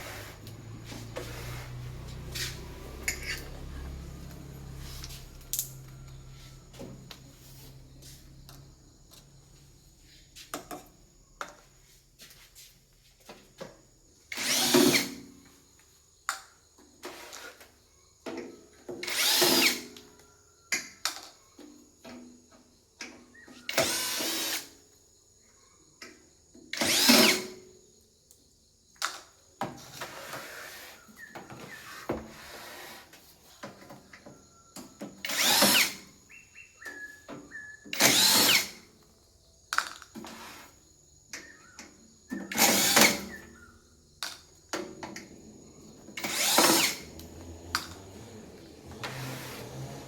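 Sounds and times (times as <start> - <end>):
power drill whining: 14.3 - 15.2, 19.0 - 19.9, 23.7 - 24.7, 26.8 - 27.5, 35.2 - 36.1, 37.8 - 38.9, 42.4 - 43.5, 45.5 - 50.0.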